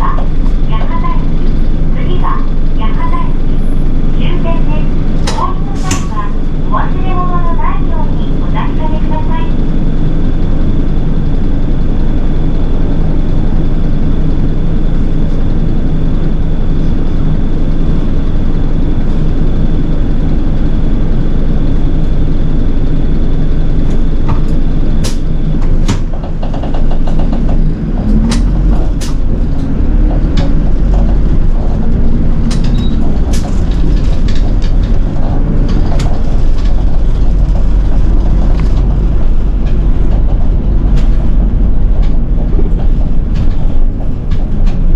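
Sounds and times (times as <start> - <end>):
bus engine and road noise: 0.0 - 44.9
deep loud rumble: 0.0 - 44.9
rattling clicks: 23.9 - 44.9.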